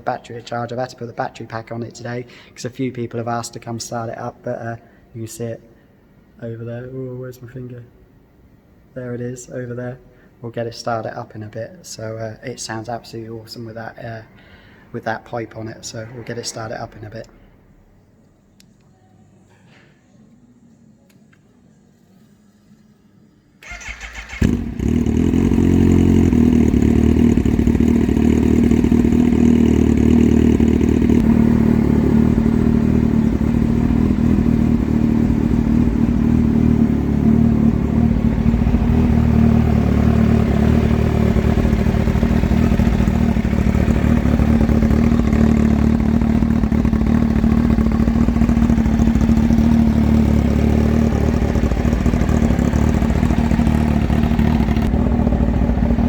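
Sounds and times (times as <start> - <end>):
motorcycle engine idling loud: 24.4 - 56.0.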